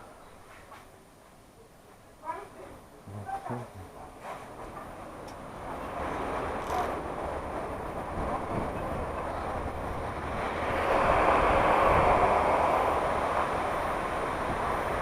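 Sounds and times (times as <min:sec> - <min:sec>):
vehicle rushing noise: 0:10.0 - 0:15.0.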